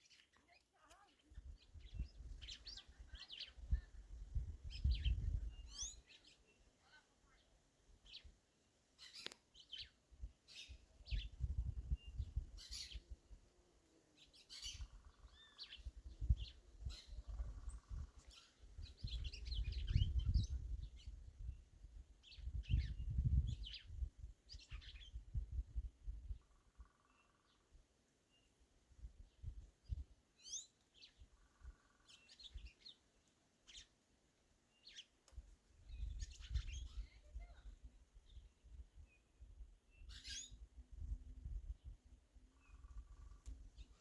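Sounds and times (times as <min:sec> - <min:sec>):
birds chirping: 0:29.3 - 0:34.0, 0:40.0 - 0:40.6.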